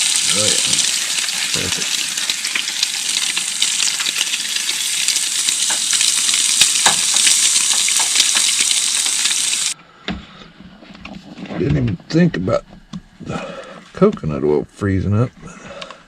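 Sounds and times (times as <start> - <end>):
crackles and pops: 0.0 - 9.8
fish frying in oil: 0.0 - 9.8.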